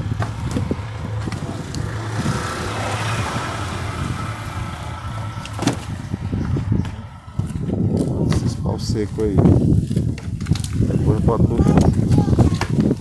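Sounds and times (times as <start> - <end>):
car passing by: 0.0 - 8.8.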